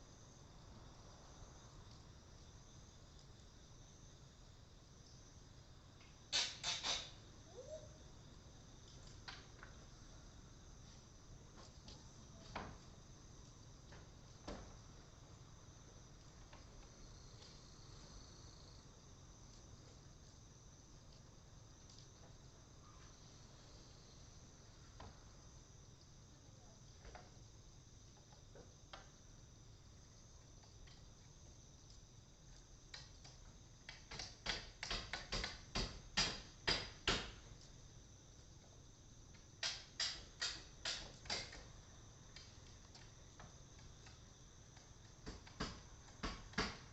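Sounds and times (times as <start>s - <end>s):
crickets and insects chirring: 0.0s - 46.9s
loud sharp clicks: 6.3s - 7.2s, 39.6s - 41.6s.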